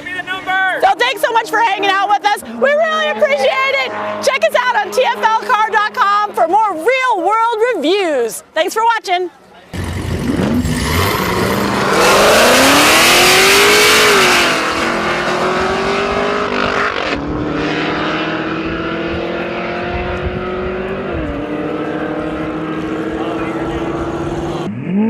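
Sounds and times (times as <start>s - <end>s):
car engine accelerating hard: 0.6s - 6.3s, 9.8s - 25.0s.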